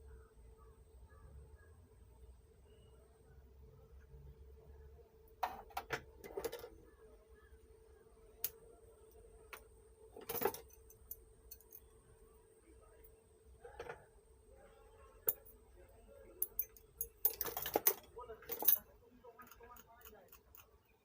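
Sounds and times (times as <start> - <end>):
faint steady hum: 0.0 - 21.0
small hard objects clicking: 19.4 - 20.8.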